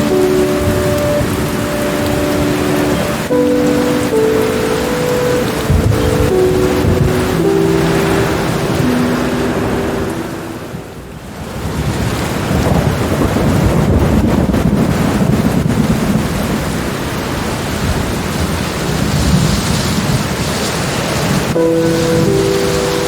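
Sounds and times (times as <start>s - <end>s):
held musical tones: 0.0s - 11.3s, 21.5s - 23.0s
steady rain hiss: 0.0s - 23.0s
thunder rumbling: 0.0s - 23.0s.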